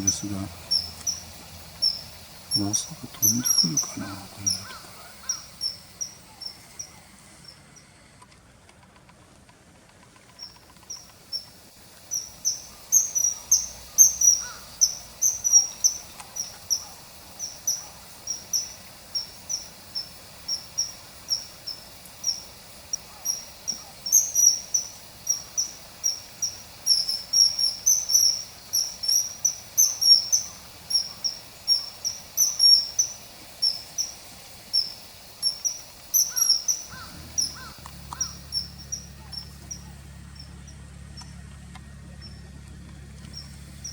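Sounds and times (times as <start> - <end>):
small bird sharp call notes: 0.0 - 8.0, 10.2 - 41.3.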